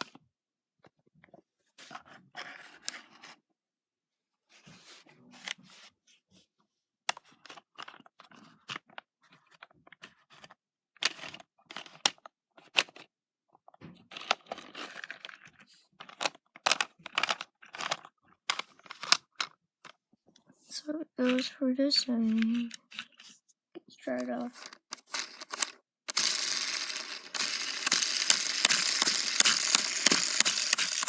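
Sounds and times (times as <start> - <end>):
plastic toy clicks and scrapes: 14.1 - 19.5, 24.0 - 31.0.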